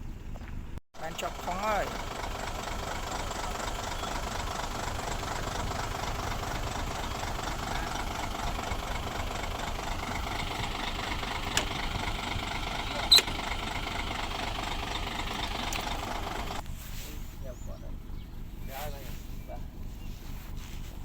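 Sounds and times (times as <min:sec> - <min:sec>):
heavy machine engine idling: 0:01.0 - 0:16.6.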